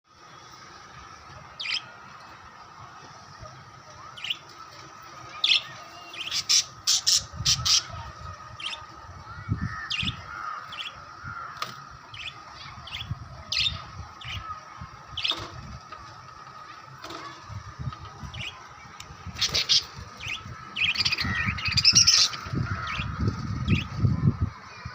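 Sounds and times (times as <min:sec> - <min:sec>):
parrots chirping and squawking: 0:05.2 - 0:15.6, 0:19.3 - 0:23.9.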